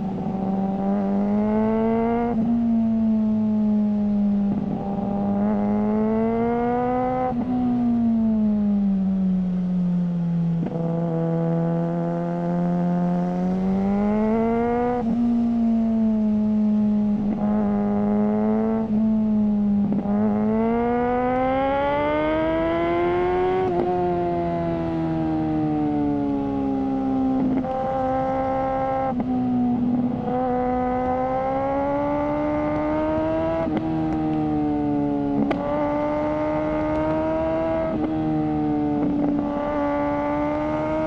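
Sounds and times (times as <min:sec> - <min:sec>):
motorcycle engine accelerating: 0:00.0 - 0:41.0.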